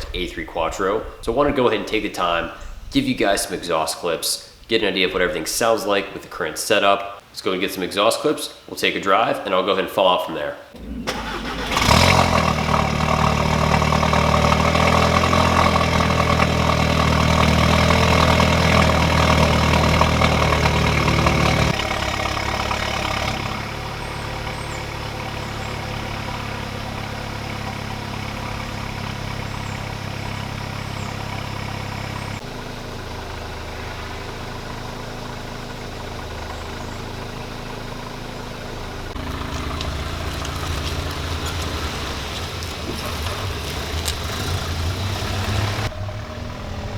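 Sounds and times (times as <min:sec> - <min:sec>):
car engine starting and idling: 0:10.7 - 0:46.9.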